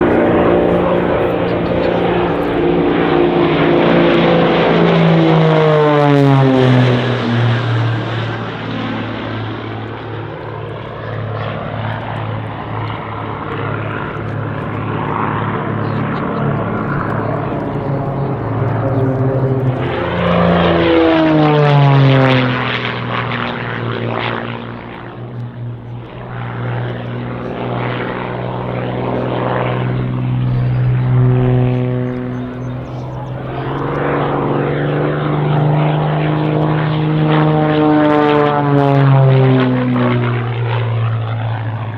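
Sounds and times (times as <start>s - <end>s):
propeller planes flying past: 0.0s - 41.9s.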